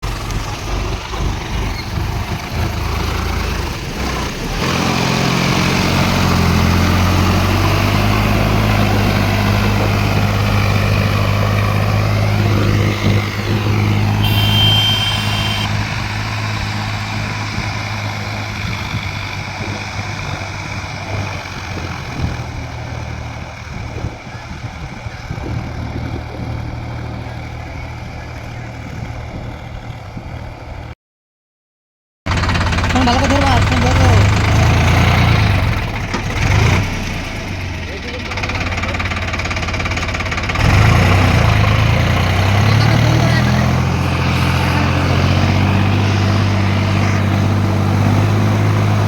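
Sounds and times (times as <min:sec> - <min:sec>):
tractor diesel engine running: 0:00.0 - 0:30.9, 0:32.3 - 0:49.0
high-pitched tone: 0:14.2 - 0:15.8.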